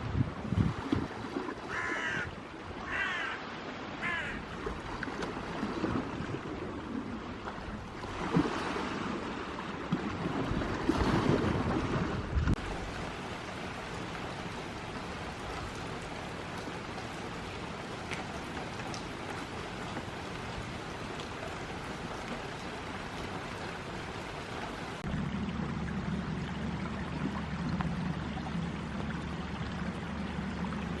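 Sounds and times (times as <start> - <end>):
sea waves washing onto shore: 0.0 - 31.0
bird calling: 1.7 - 3.4, 4.0 - 4.4.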